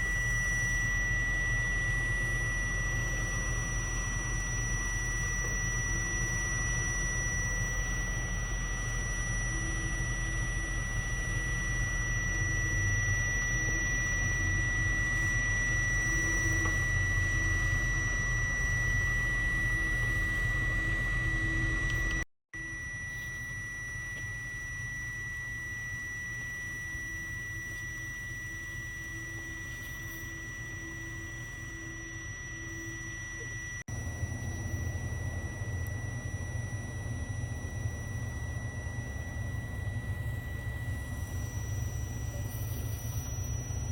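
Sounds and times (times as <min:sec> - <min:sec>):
jet engine whine and rumble: 0:00.0 - 0:43.9.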